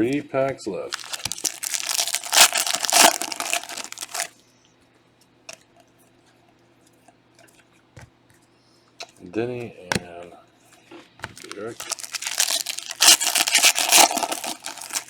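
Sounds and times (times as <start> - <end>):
wrapper tearing and crinkling: 0.9 - 4.3, 11.3 - 15.0.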